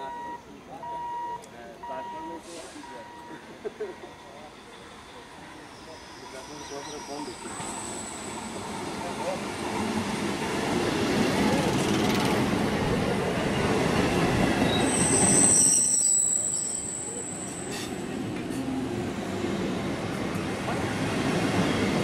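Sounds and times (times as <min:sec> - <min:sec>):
train wheel and track rumble: 0:02.5 - 0:22.0
high-pitched wheel squeal: 0:14.6 - 0:17.8.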